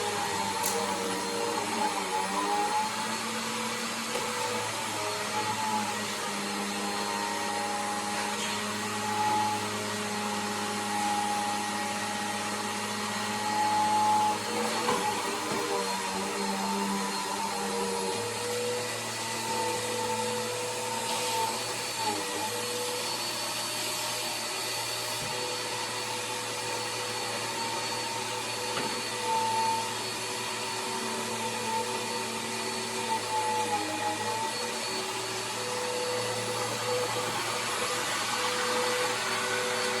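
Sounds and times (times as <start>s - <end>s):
vacuum cleaner running: 0.0s - 40.0s.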